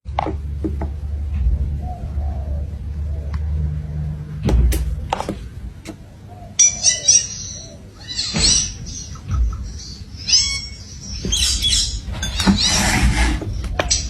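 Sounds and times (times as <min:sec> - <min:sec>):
parrot chirping: 0:06.0 - 0:14.0.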